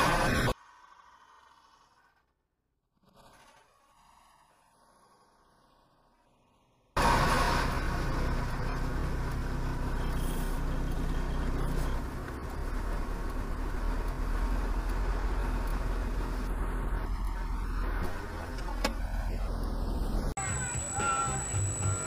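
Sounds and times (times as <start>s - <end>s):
traffic noise: 5.4s - 22.0s
car engine humming: 7.0s - 22.0s.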